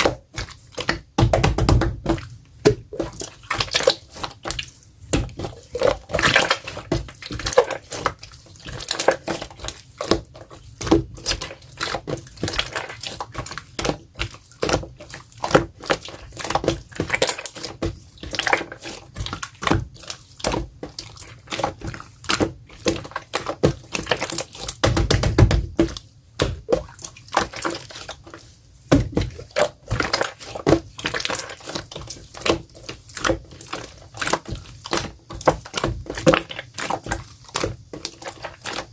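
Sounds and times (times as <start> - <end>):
slime squelching and popping: 0.0 - 38.9
dull thuds: 24.8 - 26.8, 28.8 - 30.8.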